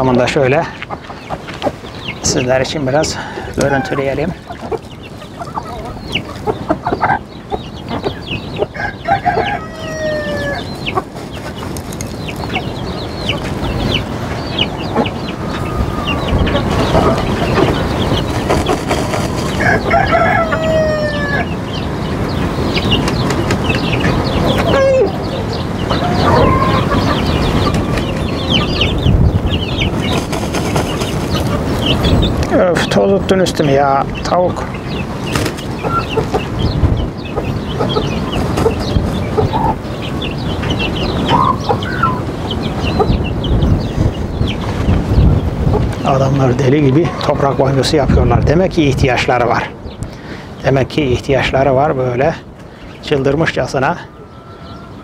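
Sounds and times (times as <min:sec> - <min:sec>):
poultry clucking: 0:00.0 - 0:55.0
rooster crowing: 0:08.7 - 0:10.8, 0:19.5 - 0:21.6, 0:24.2 - 0:28.2, 0:54.0 - 0:55.0.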